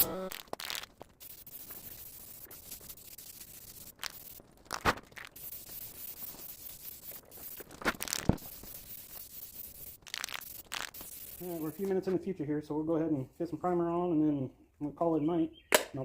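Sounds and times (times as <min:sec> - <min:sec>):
hissing spray on metal: 0:00.6 - 0:12.0.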